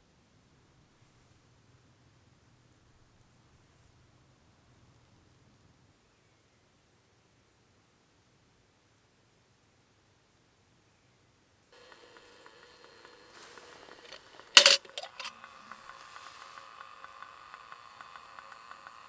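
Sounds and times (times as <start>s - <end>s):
sharp clatter: 14.0s - 15.3s.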